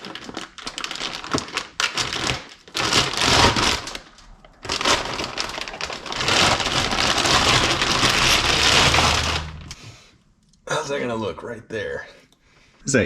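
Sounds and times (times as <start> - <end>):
packing material crinkling: 0.0 - 9.8.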